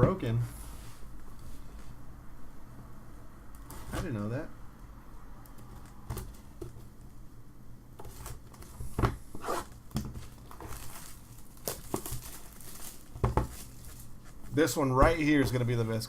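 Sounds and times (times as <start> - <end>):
packaging crinkling and tearing: 9.6 - 14.5.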